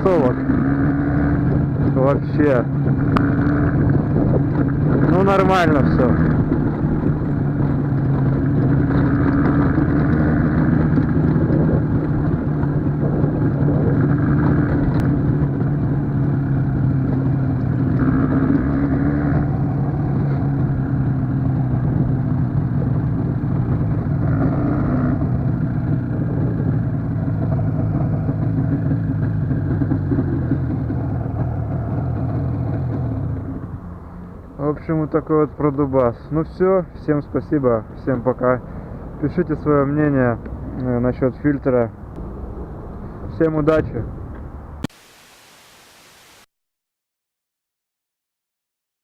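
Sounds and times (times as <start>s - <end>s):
two-stroke motorcycle engine: 0.0s - 35.8s.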